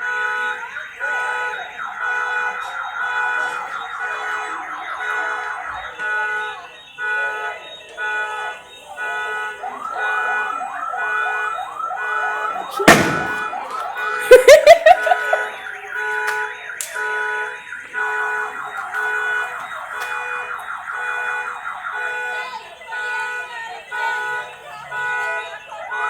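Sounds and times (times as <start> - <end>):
car alarm: 0.0 - 26.0
loud pops: 12.6 - 14.0
loud bang: 12.7 - 13.6.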